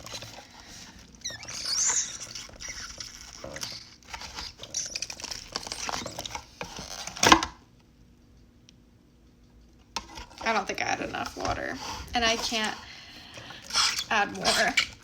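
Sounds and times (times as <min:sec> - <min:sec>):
slime crackling and squishing: 0:00.0 - 0:07.0, 0:10.2 - 0:15.0.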